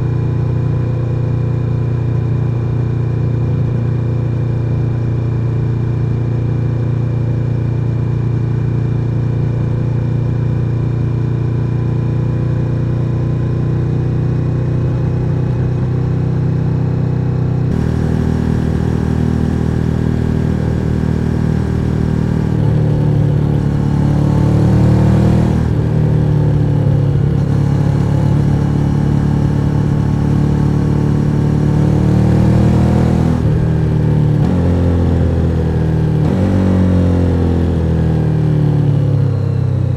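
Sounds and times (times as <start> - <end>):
motorcycle engine accelerating: 10.1 - 39.9.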